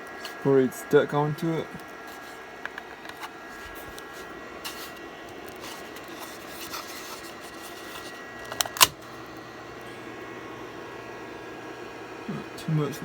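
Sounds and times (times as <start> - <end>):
steady hum: 0.0 - 13.0
plastic print scraping and clicking: 2.1 - 9.0
sharp plastic snap: 8.5 - 9.0.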